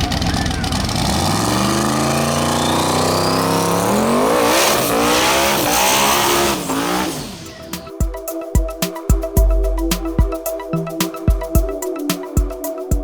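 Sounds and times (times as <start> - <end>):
car engines accelerating hard: 0.0 - 8.0
music with a beat: 6.4 - 13.0.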